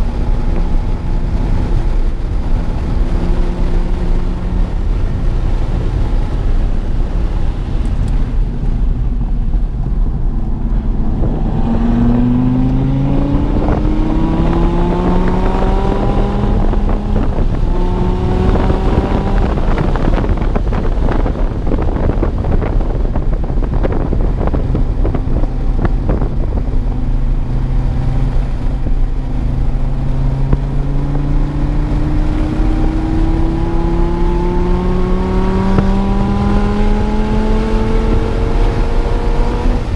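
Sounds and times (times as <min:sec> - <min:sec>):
sports car engine revving: 0:09.4 - 0:39.9.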